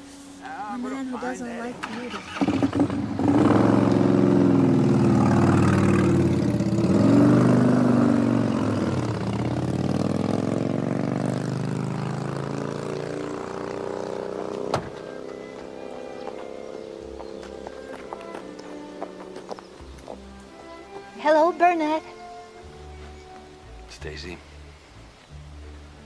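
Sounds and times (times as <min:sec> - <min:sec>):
car engine revving: 0:01.6 - 0:20.1.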